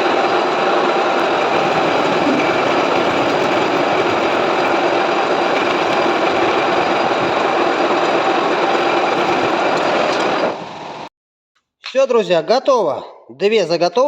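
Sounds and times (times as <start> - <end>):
metal lathe running: 0.0 - 11.1.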